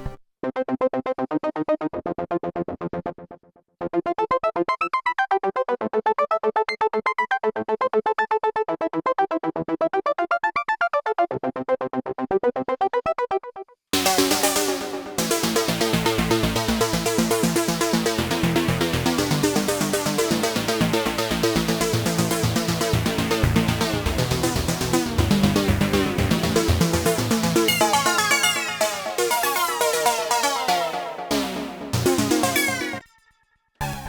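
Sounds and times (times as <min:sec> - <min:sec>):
synth bass line: 0:14.0 - 0:33.0
trance synthesizer sequence: 0:14.0 - 0:33.1.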